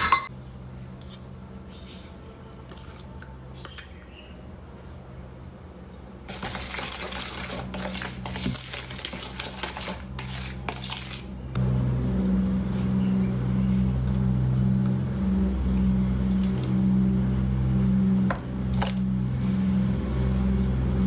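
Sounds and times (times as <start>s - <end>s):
utensils clinking against dishes: 0.0s - 0.3s
motor hum: 11.4s - 21.0s.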